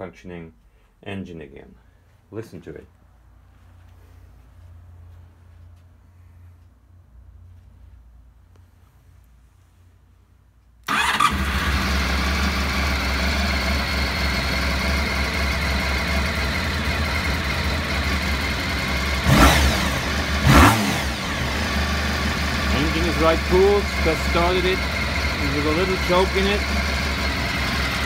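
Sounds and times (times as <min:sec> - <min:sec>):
motorcycle engine starting: 0:10.8 - 0:28.0
engine idling: 0:10.9 - 0:28.0.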